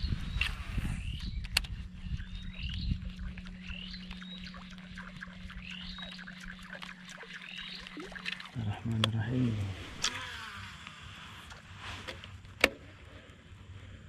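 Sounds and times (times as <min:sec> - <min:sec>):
steady low hum: 0:00.0 - 0:14.0
bird calling: 0:00.3 - 0:10.2.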